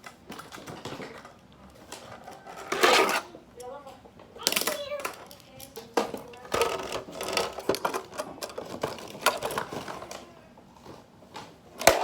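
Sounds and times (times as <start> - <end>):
small toy parts clicking: 4.4 - 10.2.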